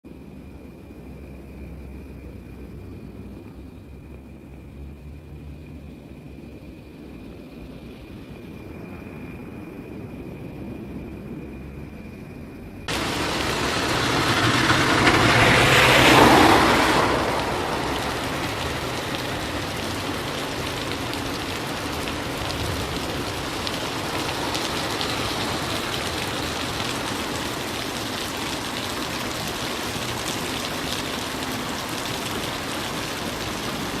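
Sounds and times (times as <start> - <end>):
rushing swell: 12.9 - 27.6
heavy rain pouring: 12.9 - 34.0.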